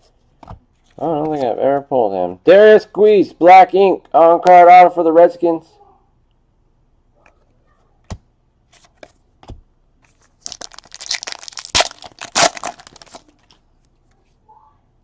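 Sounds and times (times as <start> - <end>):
foil wrapper tearing and crinkling: 10.3 - 13.6.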